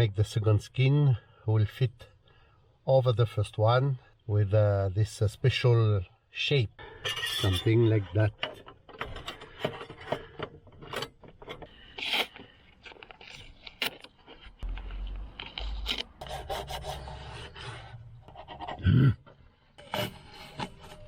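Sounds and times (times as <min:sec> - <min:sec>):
rubbing and scraping metal: 0:06.8 - 0:14.7, 0:15.3 - 0:21.0.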